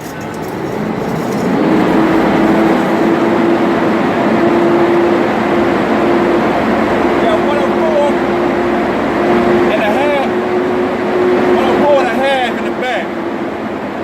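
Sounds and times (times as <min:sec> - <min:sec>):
mechanical running noise with hum: 0:00.0 - 0:03.6.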